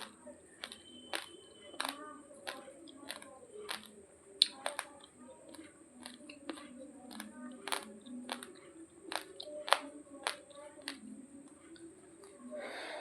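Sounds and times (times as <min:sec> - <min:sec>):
raw rice crunched between teeth: 0:00.0 - 0:04.9.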